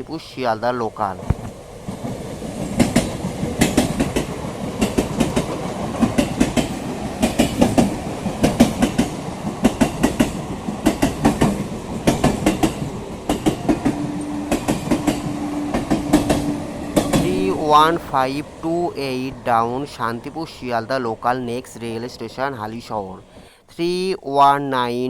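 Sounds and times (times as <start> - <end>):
train rumble: 0.0 - 23.4
train wheels clattering: 1.2 - 20.4.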